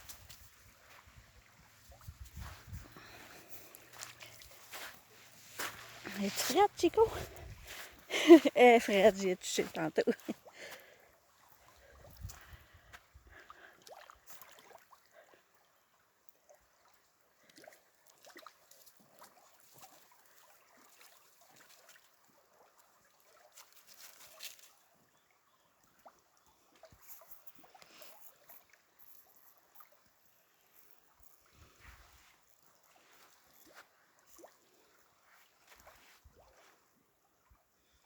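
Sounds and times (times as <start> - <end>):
water sloshing and trickling: 0.0 - 38.0
small splashes: 9.6 - 15.4, 16.5 - 24.9, 31.5 - 36.8.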